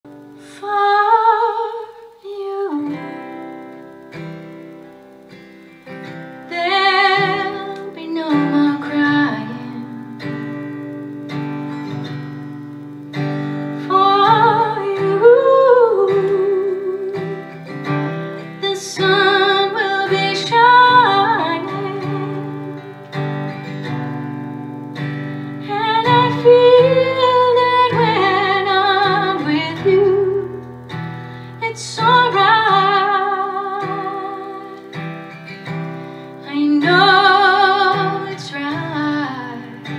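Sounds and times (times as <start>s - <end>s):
guitar: 0.0s - 39.9s
woman singing with vibrato: 0.1s - 4.1s, 6.4s - 11.3s, 13.8s - 23.1s, 25.5s - 35.1s, 35.7s - 39.9s.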